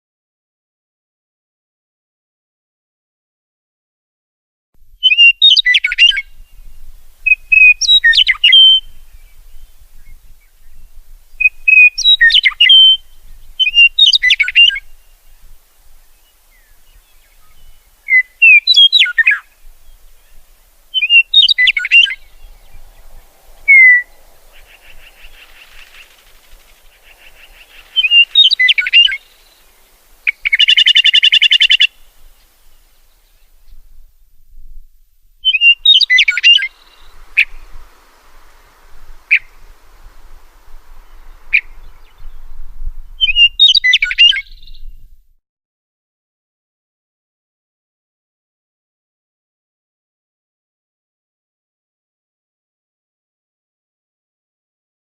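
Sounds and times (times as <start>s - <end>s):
songbird singing: 4.8s - 45.4s
harsh buzzy bird call: 16.7s - 33.1s, 35.4s - 42.5s.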